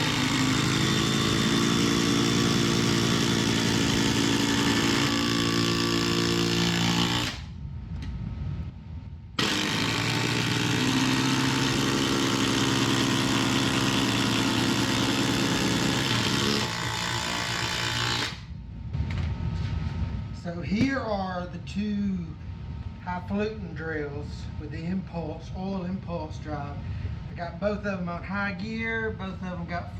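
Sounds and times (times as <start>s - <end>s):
impact drivers hammering: 0.0s - 7.4s, 9.4s - 18.4s.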